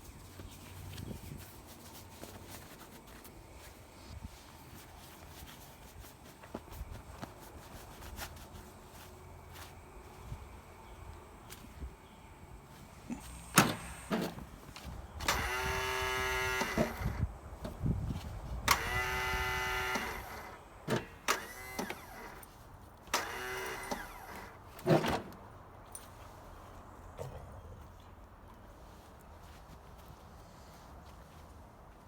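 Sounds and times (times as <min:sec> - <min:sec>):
lawnmower starter motor whirring: 0:15.2 - 0:17.8, 0:18.6 - 0:22.4, 0:23.1 - 0:25.4.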